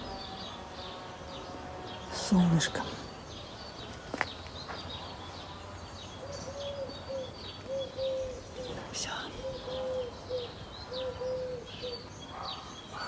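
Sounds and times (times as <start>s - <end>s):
birds chirping: 0.0s - 13.0s
dove cooing: 6.2s - 13.0s.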